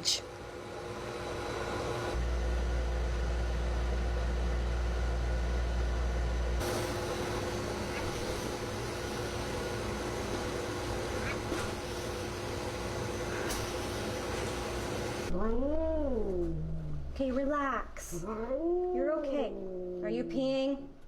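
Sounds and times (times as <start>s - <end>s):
blow dryer motor and rushing air: 0.4s - 15.3s
deep rumble: 15.3s - 20.0s.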